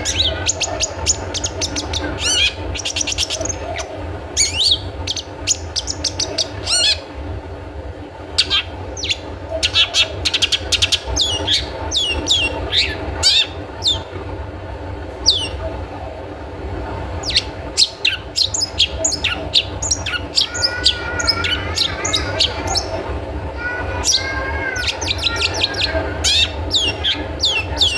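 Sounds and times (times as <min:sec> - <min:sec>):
steady low hum: 0:00.0 - 0:27.9
shrike calling sharp notes: 0:17.2 - 0:27.9.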